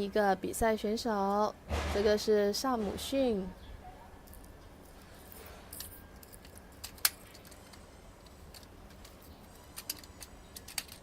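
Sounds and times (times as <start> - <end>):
plastic toy clicks: 5.8 - 11.0.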